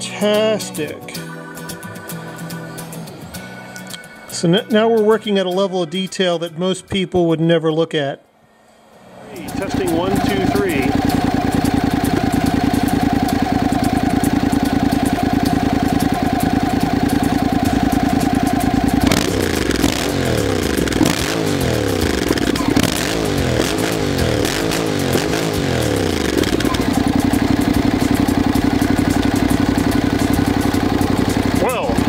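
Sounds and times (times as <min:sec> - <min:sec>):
motorcycle engine idling and revving: 0:09.4 - 0:32.0.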